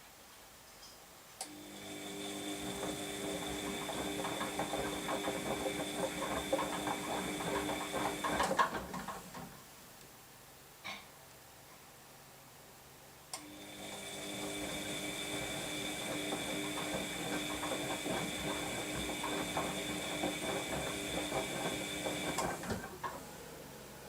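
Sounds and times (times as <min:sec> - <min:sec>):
washing machine motor hum: 0:01.5 - 0:09.6, 0:13.4 - 0:24.0.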